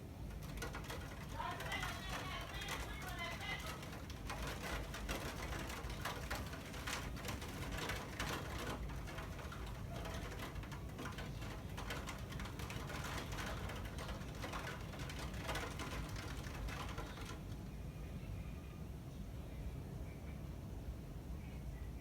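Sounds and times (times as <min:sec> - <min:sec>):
raindrops tapping on surface: 0:00.2 - 0:17.7.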